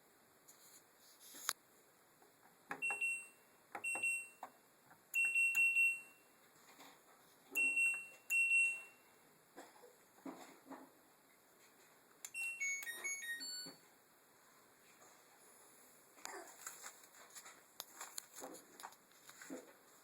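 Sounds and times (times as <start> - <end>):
washing machine beeping: 2.7 - 4.5, 5.1 - 6.3, 7.5 - 9.2, 12.3 - 13.9.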